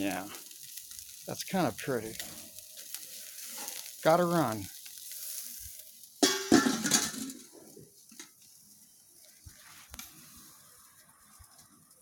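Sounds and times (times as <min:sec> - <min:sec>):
metal clang ringing: 0:06.2 - 0:07.4.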